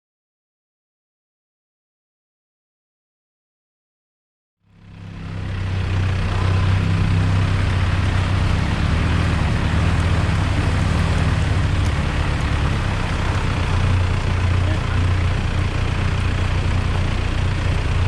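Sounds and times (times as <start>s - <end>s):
car engine humming: 4.7s - 18.0s
road and wind noise: 4.7s - 18.0s.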